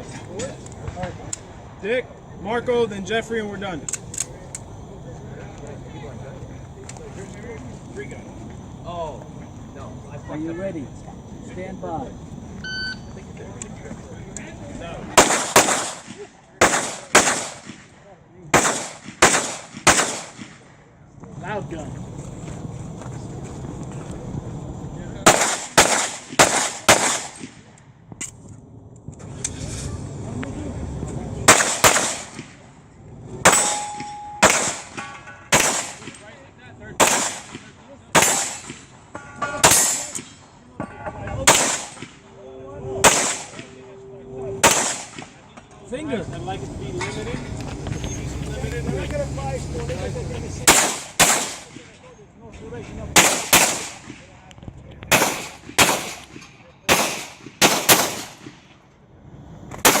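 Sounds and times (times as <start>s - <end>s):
pistol shots: 15.1s - 20.7s, 25.2s - 27.7s, 31.4s - 32.6s, 33.4s - 36.2s, 37.0s - 39.0s, 39.6s - 40.3s, 41.4s - 42.2s, 43.0s - 43.7s, 44.6s - 45.4s, 50.6s - 51.8s, 53.1s - 54.2s, 55.1s - 58.6s, 59.7s - 60.0s
metallic ring of steel target: 33.5s - 35.3s, 38.2s - 41.5s.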